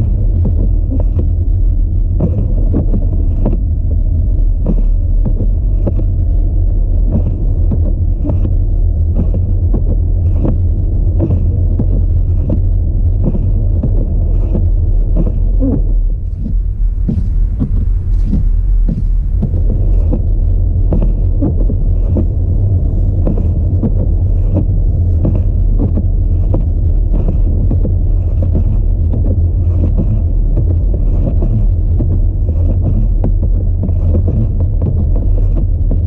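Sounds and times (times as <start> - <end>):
car road and engine rumble: 0.0 - 36.0
regular knocking: 13.3 - 20.2.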